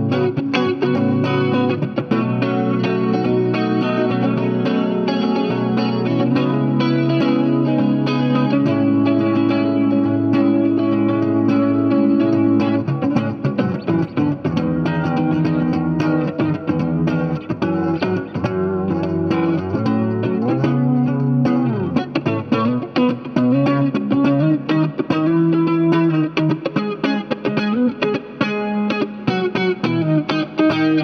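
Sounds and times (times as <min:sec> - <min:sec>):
electric guitar chords and notes: 0:00.0 - 0:31.0.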